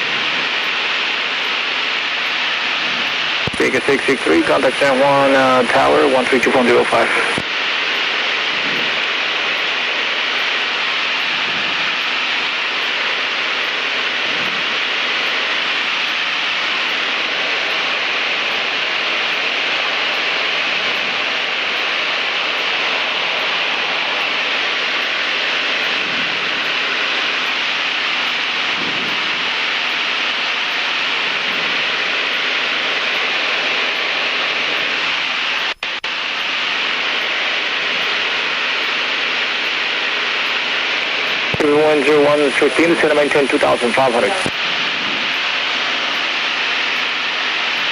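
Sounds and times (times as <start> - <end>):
small plane cabin hiss: 2.6 - 27.9, 30.6 - 47.9.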